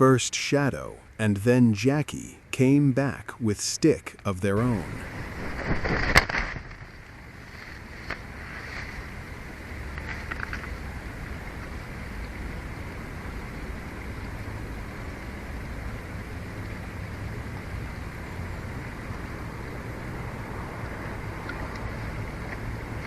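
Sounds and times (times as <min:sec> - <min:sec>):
wind noise on microphone: 0:04.8 - 0:13.3.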